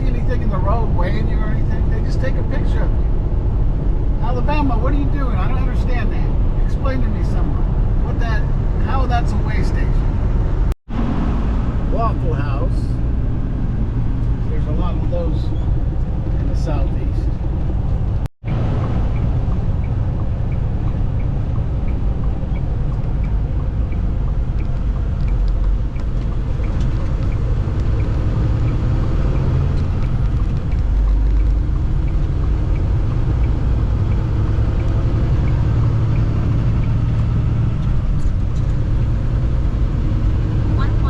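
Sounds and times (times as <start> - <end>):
truck engine and road rumble: 0.0 - 41.0
faint evenly spaced ticks: 18.5 - 37.0.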